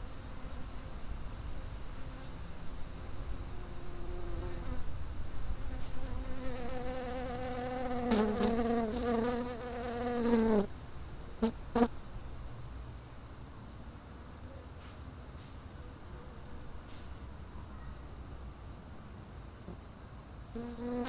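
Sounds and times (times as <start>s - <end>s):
flying insect buzzing: 5.6s - 10.7s, 20.6s - 21.0s.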